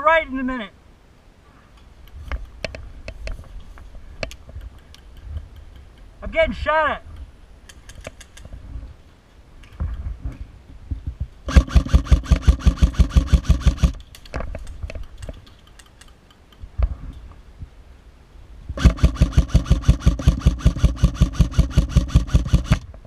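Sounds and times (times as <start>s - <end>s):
gun clicks: 7.1s - 8.5s, 11.5s - 16.7s
airsoft gun full-auto burst: 11.5s - 14.0s, 18.8s - 22.8s
single airsoft shots: 11.5s - 14.0s, 18.8s - 22.8s.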